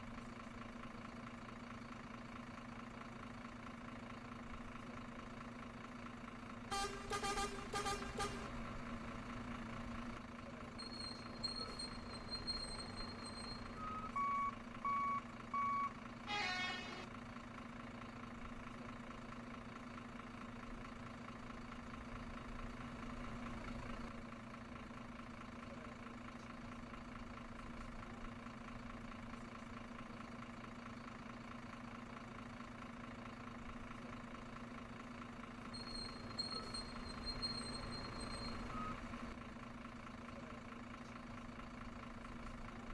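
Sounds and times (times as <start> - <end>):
simulated engine idle hum: 0.0 - 42.9
pitched horn blast: 6.7 - 8.6, 16.2 - 17.1
reversing beeps: 10.8 - 16.0, 35.8 - 39.1.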